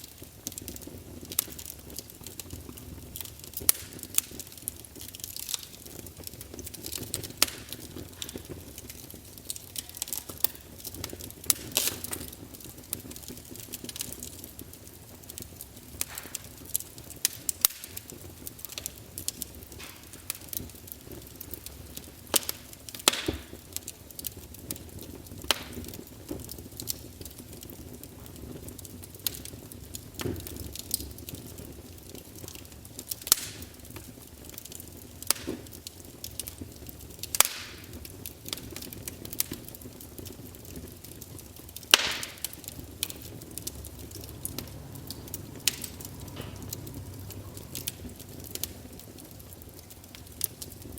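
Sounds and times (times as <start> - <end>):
low rumble of flames: 0.0 - 50.9
wood fire crackling and popping: 0.0 - 50.9.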